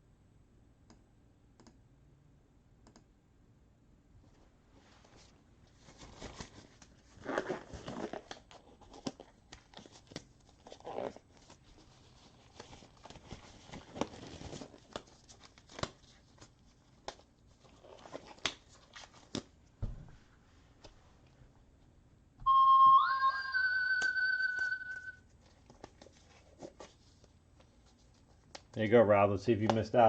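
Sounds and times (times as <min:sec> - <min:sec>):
crinkling and rustling: 0:04.2 - 0:21.4, 0:25.2 - 0:29.0.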